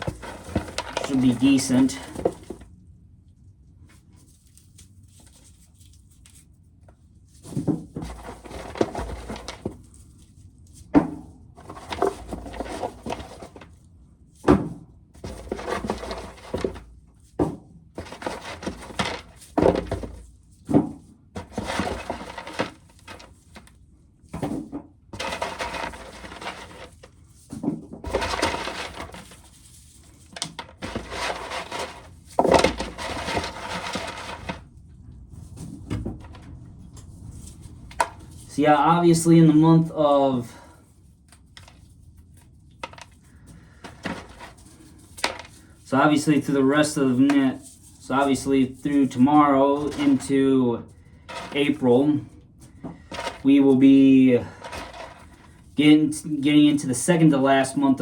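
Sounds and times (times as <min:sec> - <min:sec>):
corn kernels rattling into container: 0:00.0 - 0:02.5, 0:15.2 - 0:16.8, 0:21.4 - 0:23.3, 0:25.2 - 0:27.0, 0:28.0 - 0:29.5, 0:30.4 - 0:34.6, 0:51.3 - 0:51.8, 0:53.1 - 0:55.4.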